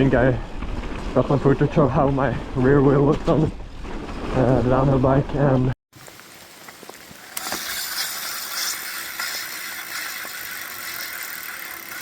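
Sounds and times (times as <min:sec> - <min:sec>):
freewheel hub clicking: 0:06.0 - 0:12.0.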